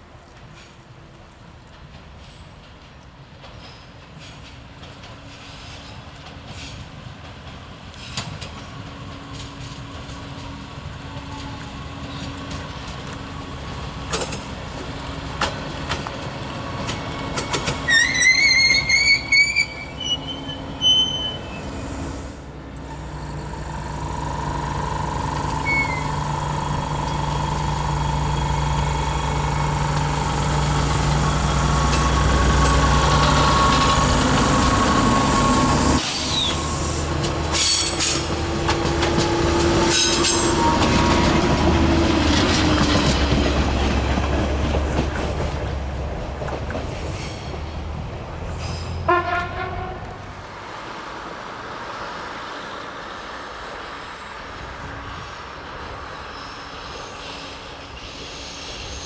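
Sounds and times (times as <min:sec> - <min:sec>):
railcar engine hum: 0:00.0 - 0:59.0
wheels clicking over rail joints: 0:00.3 - 0:20.2, 0:22.7 - 0:35.1, 0:37.2 - 0:50.4
faint wheel squeal: 0:17.9 - 0:22.0, 0:25.6 - 0:26.2.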